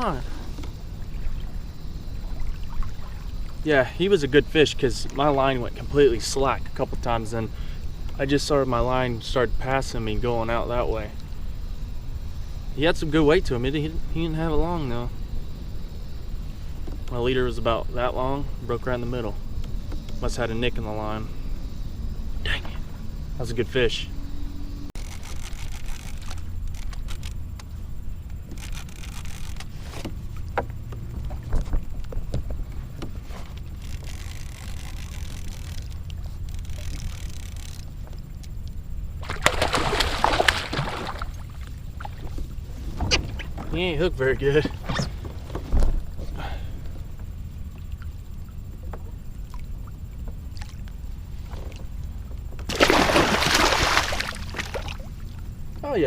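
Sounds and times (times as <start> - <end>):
wind and water rumble: 0.0 - 56.0
fish splashing at surface: 39.2 - 42.2, 52.7 - 55.1.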